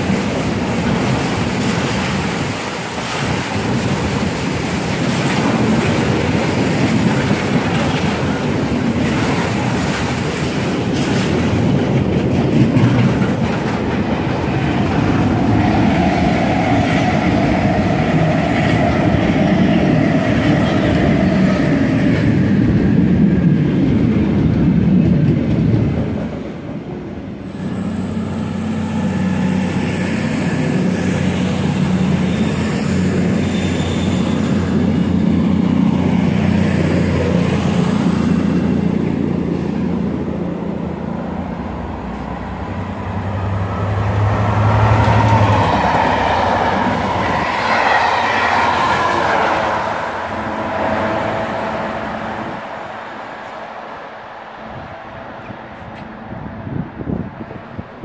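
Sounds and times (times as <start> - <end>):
diesel locomotive engine: 0.0 - 58.0
freight train rumble: 0.0 - 58.0
high wheel squeal: 27.4 - 39.7.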